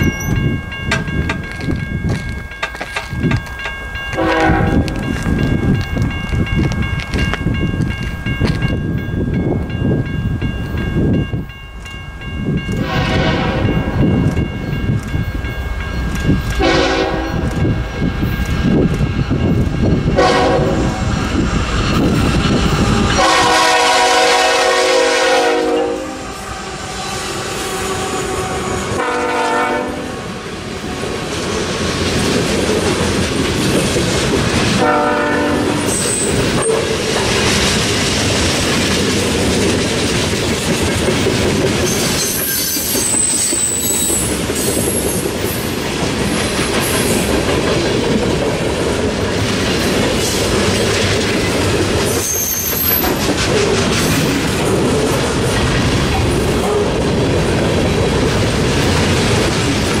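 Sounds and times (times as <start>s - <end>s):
train rolling past: 0.0s - 60.0s
train horn: 4.2s - 5.0s, 12.8s - 14.0s, 16.6s - 17.6s, 20.2s - 21.1s, 23.0s - 30.3s, 34.8s - 35.9s
high-pitched wheel squeals: 41.9s - 45.2s, 52.1s - 53.2s.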